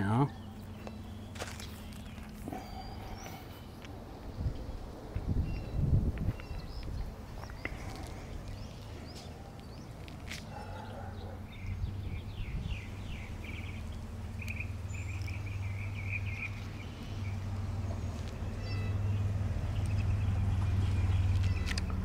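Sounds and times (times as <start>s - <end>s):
low outdoor rumble: 0.0s - 22.0s
small bird chirping: 5.4s - 22.0s.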